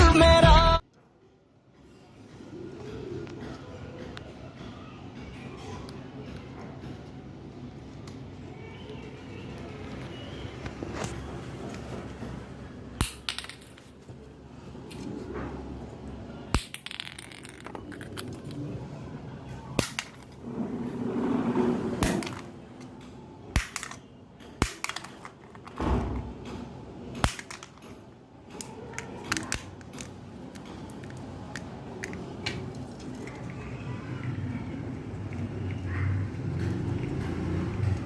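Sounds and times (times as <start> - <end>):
low background murmur: 0.8 - 38.0
sharp clicks and cracks: 27.2 - 33.4.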